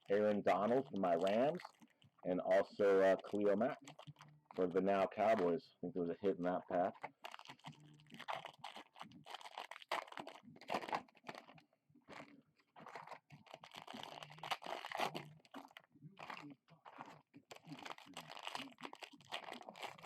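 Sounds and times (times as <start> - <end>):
foil wrappers tearing and crinkling: 0.1 - 1.9, 7.0 - 20.0.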